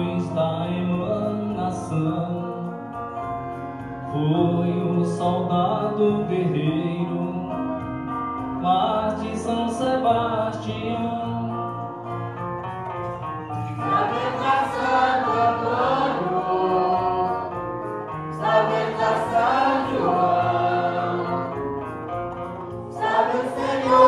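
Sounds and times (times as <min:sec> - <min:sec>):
group singing a hymn: 0:13.7 - 0:21.8, 0:22.9 - 0:24.0.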